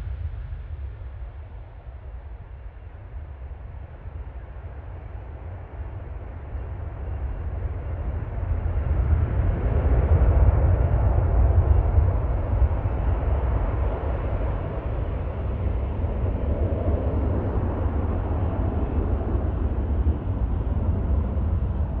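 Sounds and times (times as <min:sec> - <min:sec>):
jet engines rumbling: 0:00.0 - 0:22.0.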